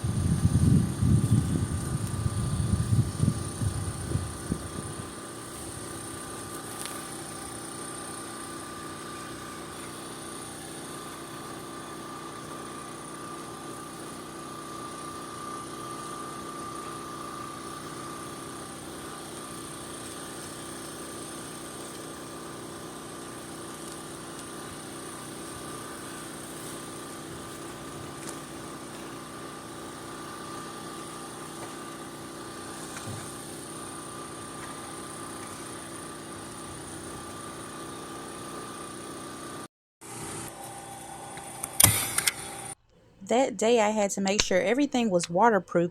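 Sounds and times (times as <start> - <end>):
generator engine humming: 0.0 - 45.9.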